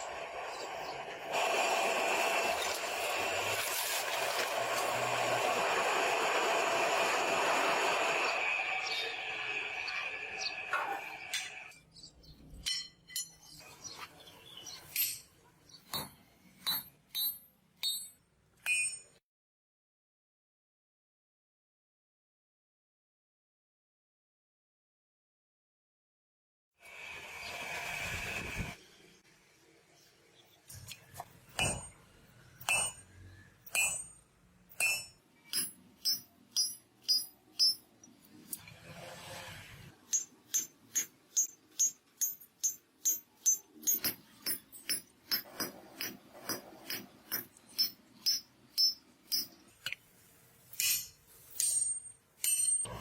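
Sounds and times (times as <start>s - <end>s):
metal clinking on metal: 12.6s - 13.6s, 50.8s - 53.0s
hammer striking metal on anvil: 15.9s - 19.2s, 31.5s - 32.0s, 32.6s - 37.9s, 40.1s - 49.6s.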